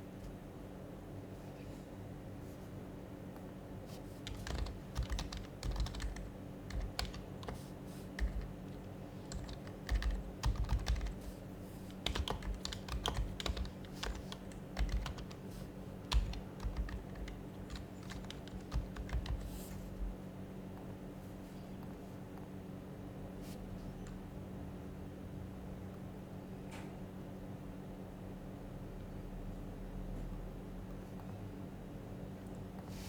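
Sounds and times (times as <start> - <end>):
faint steady hum: 0.0 - 33.0
soft muffled keyboard typing: 3.4 - 20.2.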